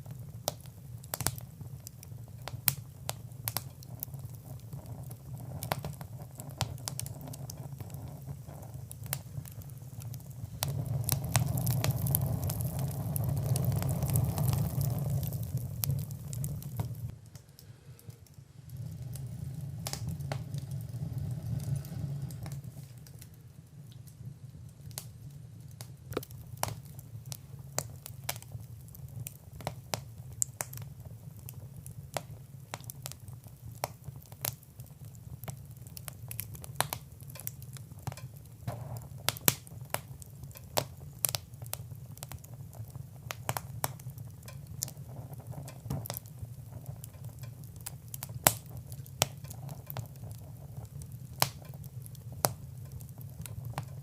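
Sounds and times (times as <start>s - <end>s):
fire crackling: 0.0s - 54.0s
low rumble of flames: 0.0s - 54.0s.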